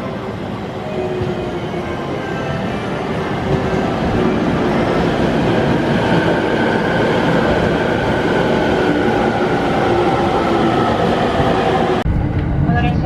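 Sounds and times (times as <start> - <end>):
train carriage running noise: 0.0 - 13.0.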